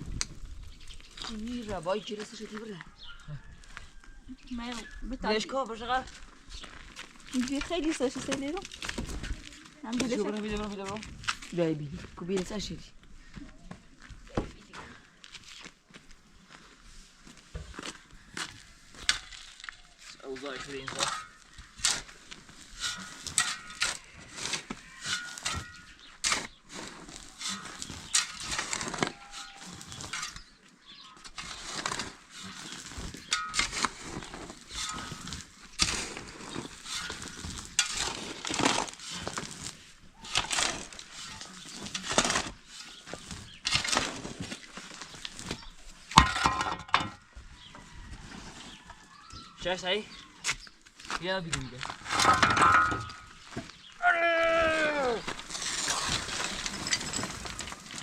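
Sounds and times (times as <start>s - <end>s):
rubble falling: 31.3s - 47.2s, 51.0s - 58.0s
demolition knocks and crashes: 52.0s - 53.5s, 55.2s - 58.0s.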